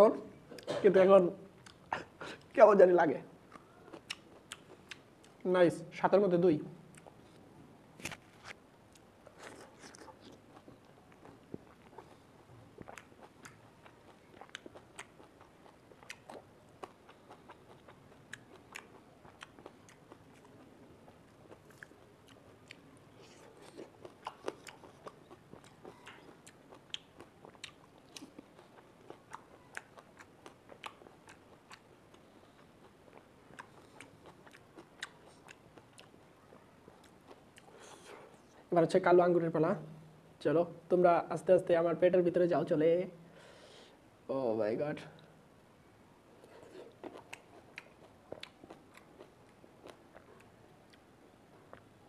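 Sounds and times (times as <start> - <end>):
wet chewing with mouth clicks: 1.6 - 2.5, 3.5 - 5.4, 6.9 - 38.6, 46.4 - 52.0.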